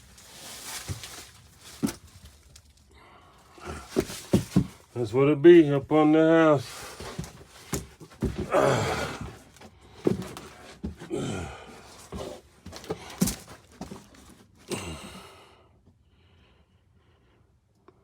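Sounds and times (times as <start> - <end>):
clothing scraping against ground: 0.0 - 2.8, 6.4 - 14.7
heavy breathing: 2.9 - 4.6, 6.7 - 14.0, 14.6 - 17.6
person grunting: 8.4 - 9.4, 11.0 - 11.8, 14.7 - 15.4.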